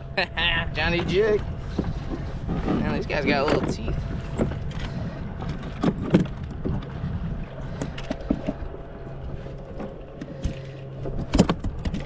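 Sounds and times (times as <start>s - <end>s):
wind rumble on microphone: 0.0s - 12.0s
knocks and taps in a kayak: 1.0s - 7.0s, 9.8s - 12.0s.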